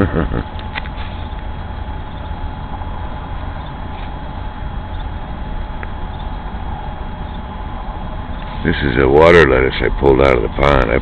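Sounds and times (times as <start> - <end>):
faint high hum: 0.0 - 11.0
steady hiss: 0.7 - 11.0
faint chirp: 1.1 - 2.4, 3.5 - 5.2, 6.1 - 6.5.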